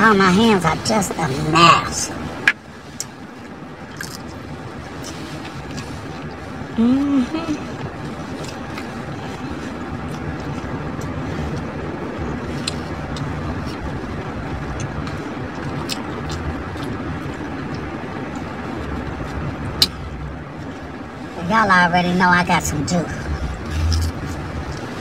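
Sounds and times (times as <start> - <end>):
low background rumble: 0.0 - 25.0
crunchy taco being eaten: 3.0 - 6.4.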